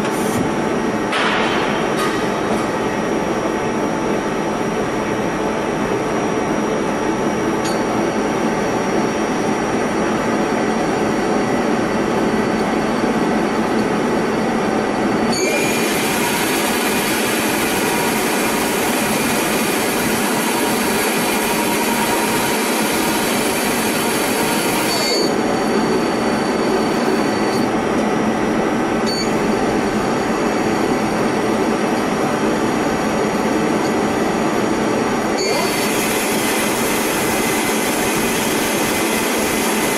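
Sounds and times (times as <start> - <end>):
lathe machine drone: 8.5 - 39.9.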